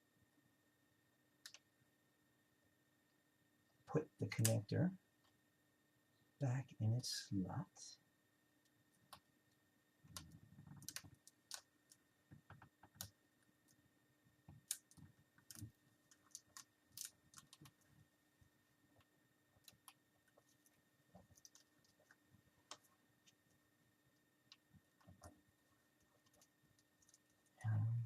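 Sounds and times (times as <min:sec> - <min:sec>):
small plastic clicks and taps: 0:01.4 - 0:01.7, 0:10.1 - 0:13.8, 0:14.4 - 0:17.9.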